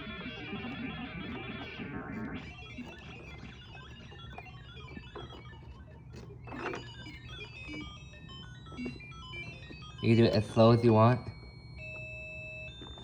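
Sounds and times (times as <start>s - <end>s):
electronic guitar bleeps: 8.8s - 11.4s.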